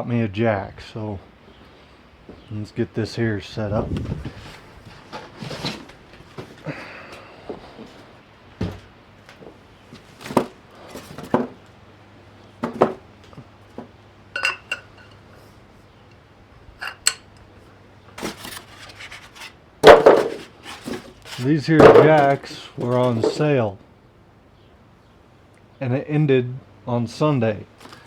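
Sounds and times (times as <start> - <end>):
ringing metal clink: 14.4 - 15.2.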